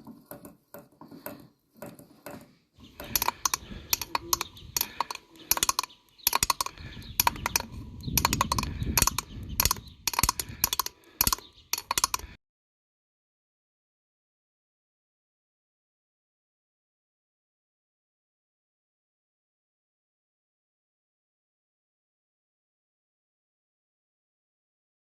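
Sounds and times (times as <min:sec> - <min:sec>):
metal tools clinking: 0:02.9 - 0:12.4.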